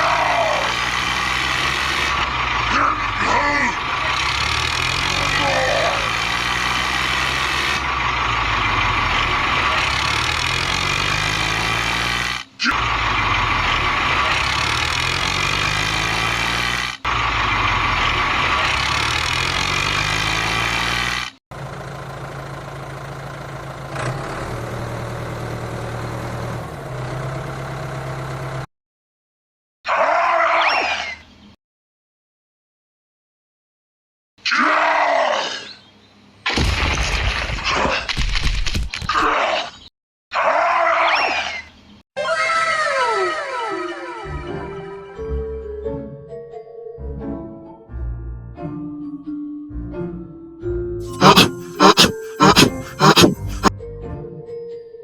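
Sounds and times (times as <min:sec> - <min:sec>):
engine running: 0:00.0 - 0:28.7, 0:51.0 - 0:53.7.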